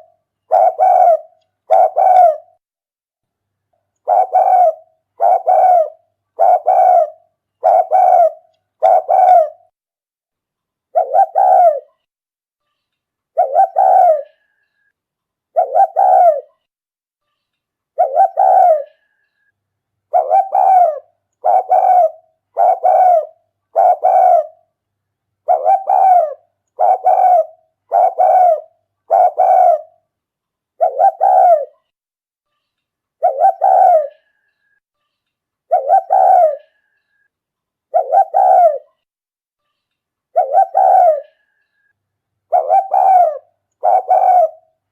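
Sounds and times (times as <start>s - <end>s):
dove cooing: 0.0s - 2.6s, 4.0s - 9.7s, 10.9s - 11.9s, 13.4s - 14.4s, 15.5s - 16.5s, 18.0s - 19.0s, 20.1s - 24.6s, 25.4s - 29.9s, 30.8s - 31.7s, 33.2s - 34.3s, 35.7s - 36.8s, 37.9s - 38.9s, 40.3s - 41.4s, 42.5s - 44.8s.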